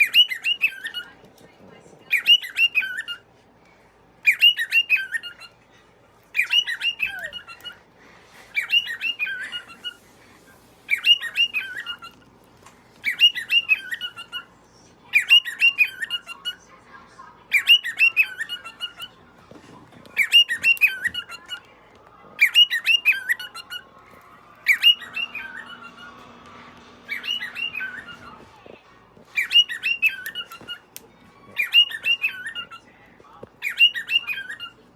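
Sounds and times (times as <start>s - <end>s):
cockatiel whistling: 6.4s - 7.7s, 8.5s - 10.0s, 10.9s - 12.2s, 13.0s - 14.4s, 24.6s - 30.8s, 31.4s - 32.8s, 33.6s - 34.8s.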